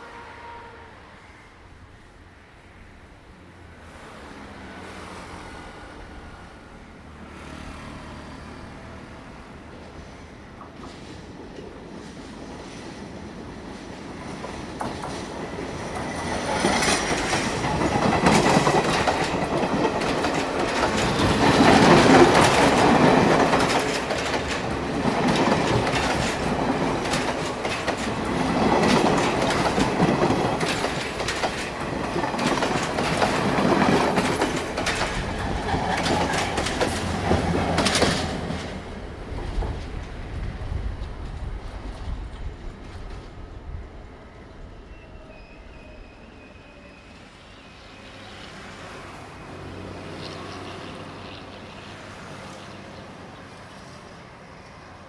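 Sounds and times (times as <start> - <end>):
train passing: 0.0 - 55.0
wheels clicking over rail joints: 13.7 - 42.2
wheel squeal: 44.9 - 47.2.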